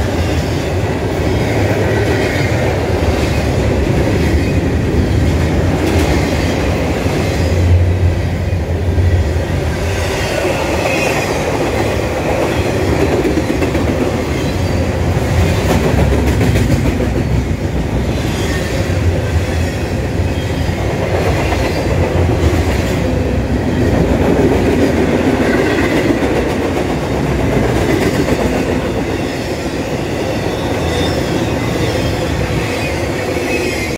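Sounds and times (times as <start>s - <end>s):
freight train rumbling past: 0.0s - 33.9s.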